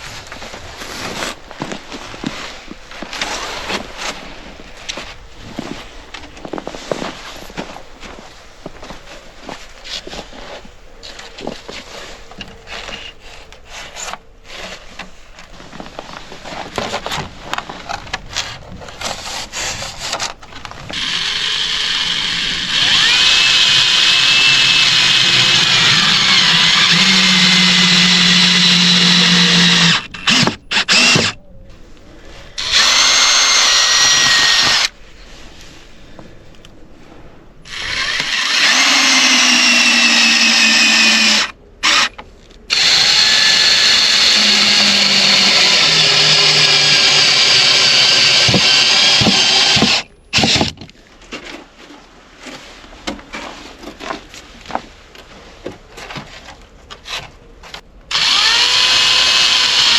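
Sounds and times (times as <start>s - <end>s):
power drill whining: 20.9s - 31.4s, 32.6s - 34.9s, 37.7s - 50.8s, 58.1s - 59.9s.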